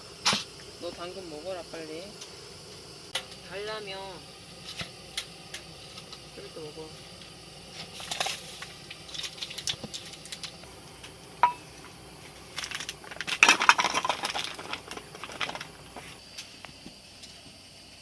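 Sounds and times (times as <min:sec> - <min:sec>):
dish clinking: 0:11.4 - 0:11.7
utensils clattering: 0:12.5 - 0:15.7.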